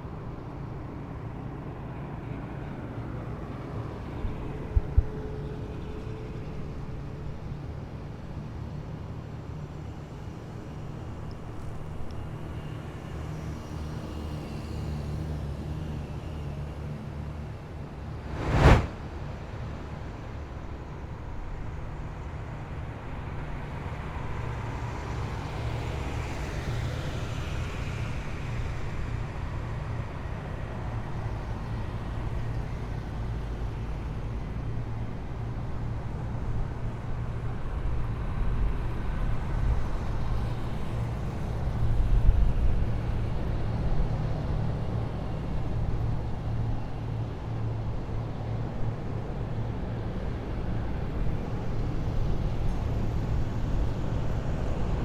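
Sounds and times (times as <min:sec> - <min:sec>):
falling whine: 0:18.2 - 0:19.0.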